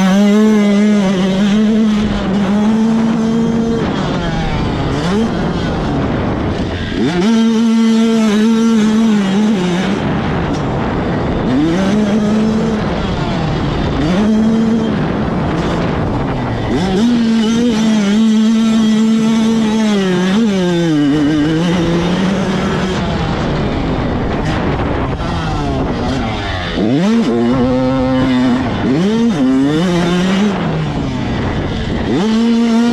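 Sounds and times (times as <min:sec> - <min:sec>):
motocross bikes revving: 0:00.0 - 0:32.9.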